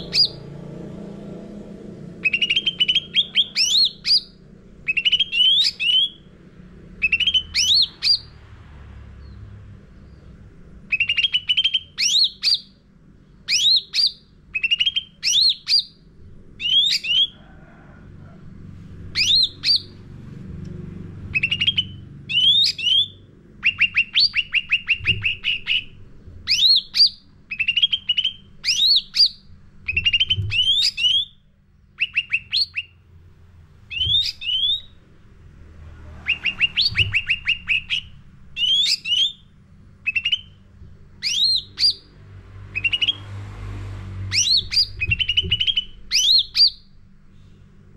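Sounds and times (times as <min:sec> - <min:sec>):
songbird singing chirpy notes: 0:00.0 - 0:00.6, 0:02.2 - 0:06.3, 0:07.0 - 0:08.4, 0:09.1 - 0:17.4, 0:19.1 - 0:20.0, 0:21.2 - 0:33.0, 0:33.9 - 0:35.0, 0:36.2 - 0:43.4, 0:44.2 - 0:47.0.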